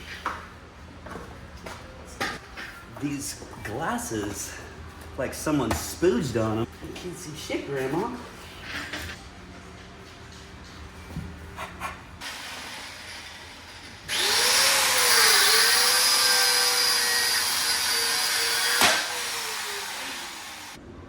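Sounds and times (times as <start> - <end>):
angle grinder grinding metal: 12.6 - 20.8.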